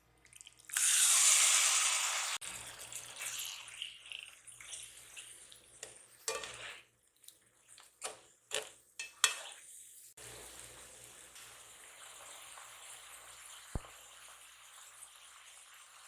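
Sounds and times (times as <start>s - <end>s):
utensils and dishes clinking: 6.2s - 6.8s.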